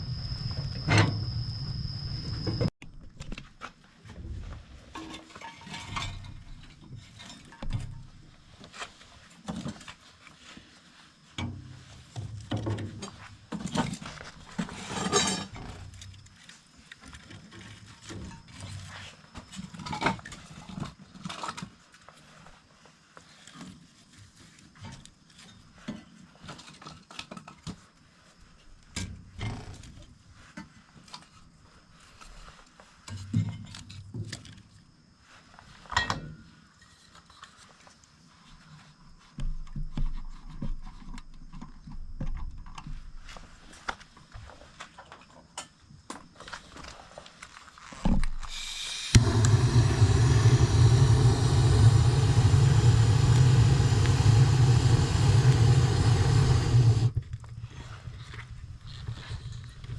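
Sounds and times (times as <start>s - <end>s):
wood fire crackling: 49.1s - 57.1s
rumbling flames: 49.2s - 57.2s.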